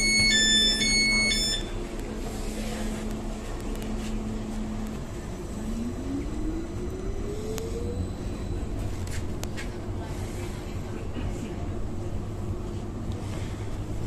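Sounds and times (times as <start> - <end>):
traction motor rising whine: 3.0 - 9.1.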